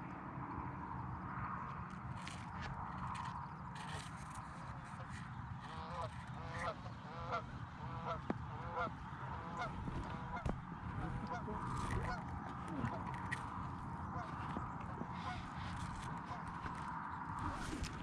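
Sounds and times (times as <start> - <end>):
steady low rumble: 0.0 - 18.0
geese honking: 4.8 - 18.0.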